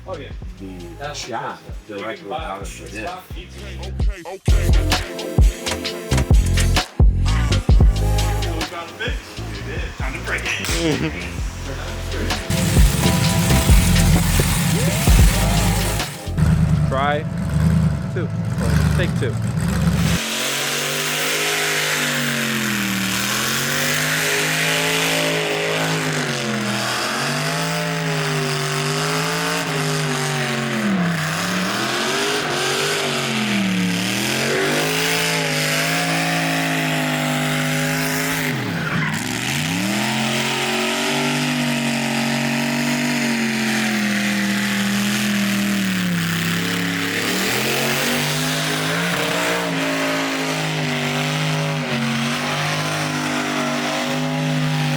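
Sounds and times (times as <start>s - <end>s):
car engine at high revs: 4.5s - 54.9s
tyres spinning hiss: 7.9s - 16.4s.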